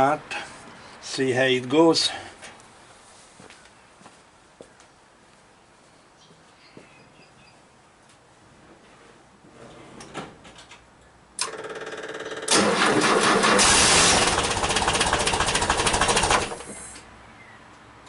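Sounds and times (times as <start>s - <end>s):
starter motor cranking: 11.4s - 16.7s.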